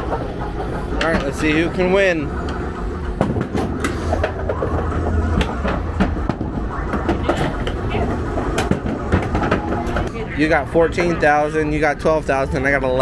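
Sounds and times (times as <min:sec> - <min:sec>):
balls rolling down lanes: 0:00.0 - 0:11.4.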